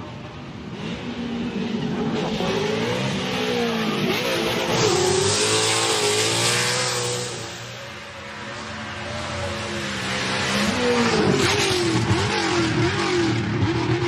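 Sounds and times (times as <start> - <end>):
racing car engine accelerating: 0.8 - 7.8.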